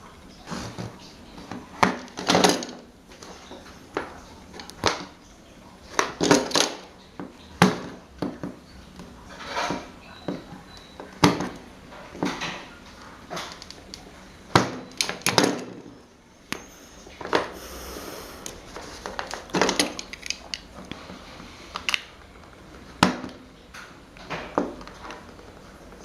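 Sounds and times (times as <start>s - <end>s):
short hiss: 17.5s - 18.6s.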